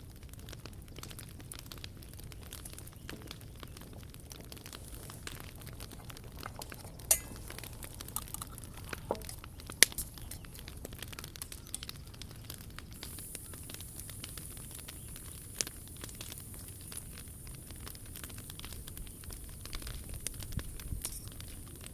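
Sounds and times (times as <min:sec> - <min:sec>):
wood fire crackling: 0:00.0 - 0:21.9
sharp pops: 0:01.0 - 0:21.9
high hiss: 0:13.0 - 0:21.6.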